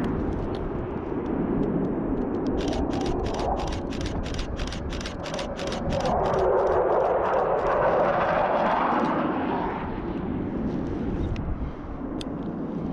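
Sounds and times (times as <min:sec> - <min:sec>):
low rumble: 0:00.0 - 0:12.7
jet aircraft noise: 0:00.0 - 0:12.9
sharp clicks: 0:01.6 - 0:07.8.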